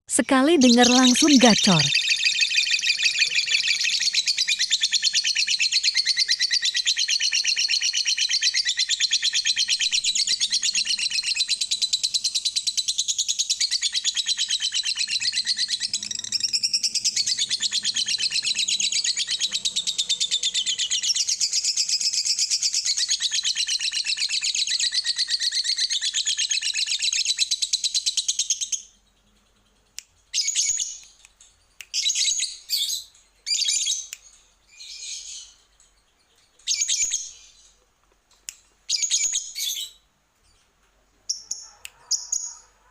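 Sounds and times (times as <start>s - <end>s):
lovebird chattering trill: 0.2s - 28.8s.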